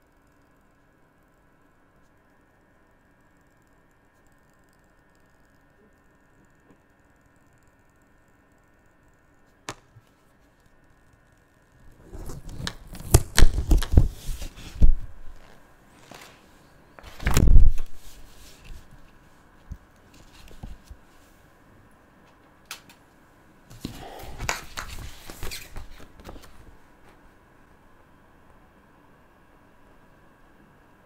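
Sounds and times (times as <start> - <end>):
paper rustling: 11.9 - 19.0, 23.7 - 26.7.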